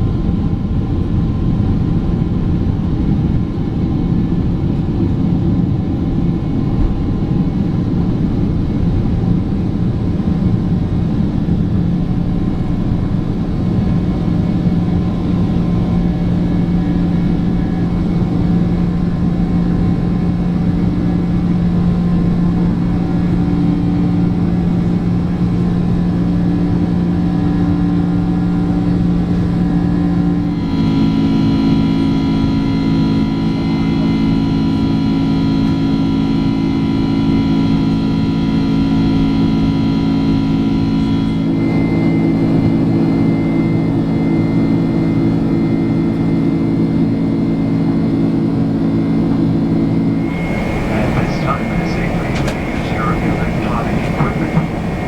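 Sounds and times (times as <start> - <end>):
jet engine roar in cabin: 0.1 - 55.0
engine hum: 50.2 - 55.0.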